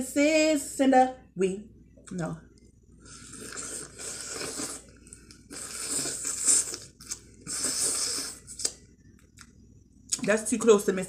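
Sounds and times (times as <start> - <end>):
chewing and mouth sounds: 3.1 - 10.3.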